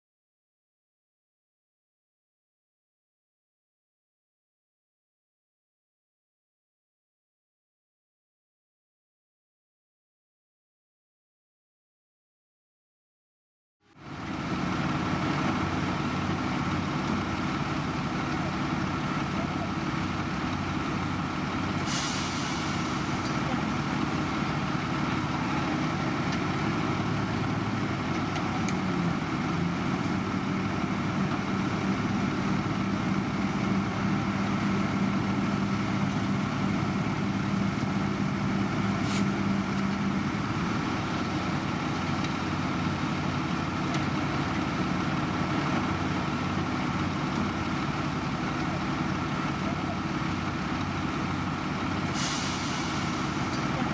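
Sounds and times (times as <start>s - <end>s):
diesel machinery running: 14.0s - 53.9s
air hissing: 21.8s - 23.2s, 52.1s - 53.5s.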